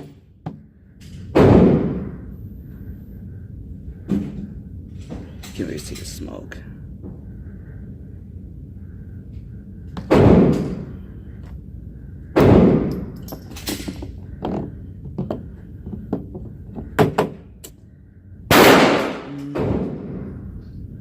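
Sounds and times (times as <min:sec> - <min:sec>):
gunshots: 0:10.1 - 0:10.8, 0:12.4 - 0:12.9, 0:18.5 - 0:20.3.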